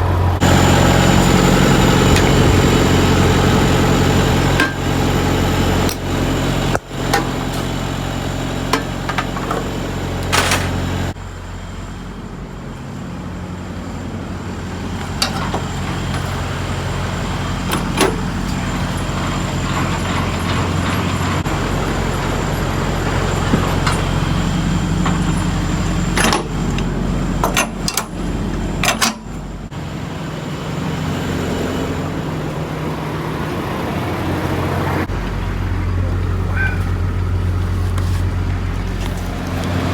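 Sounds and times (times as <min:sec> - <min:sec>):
diesel truck engine running: 0:00.0 - 0:39.9
sharp clicks and knocks: 0:26.2 - 0:29.3.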